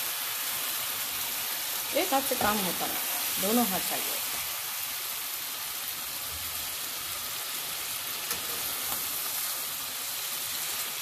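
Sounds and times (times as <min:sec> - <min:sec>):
food sizzling in a frying pan: 0:00.0 - 0:11.0
spatula turning food: 0:01.4 - 0:04.5, 0:06.8 - 0:11.0.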